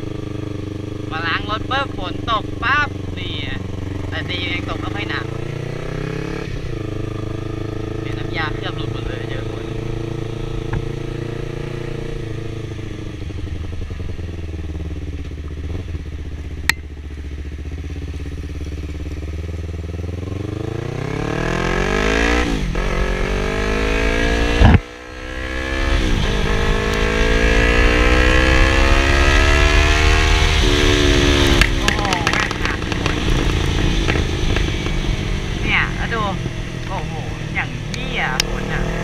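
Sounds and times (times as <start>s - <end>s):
motorcycle engine: 0.0s - 39.0s
motorcycle gear changes: 24.2s - 24.9s, 25.9s - 35.6s.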